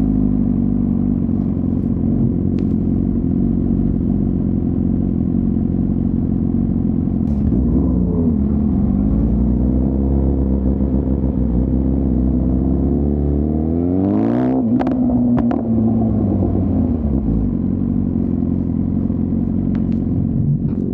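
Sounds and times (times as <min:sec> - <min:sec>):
motorcycle engine revving: 0:00.0 - 0:20.9
exhaust cracks: 0:01.3 - 0:03.2, 0:07.2 - 0:09.9, 0:14.7 - 0:20.9.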